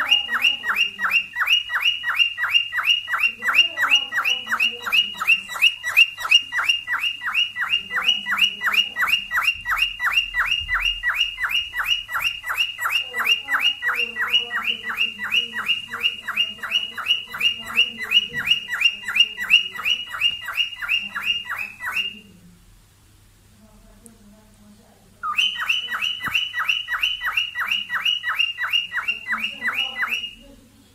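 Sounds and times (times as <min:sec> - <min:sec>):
cockatiel chirping: 0:00.0 - 0:22.4, 0:25.2 - 0:30.5.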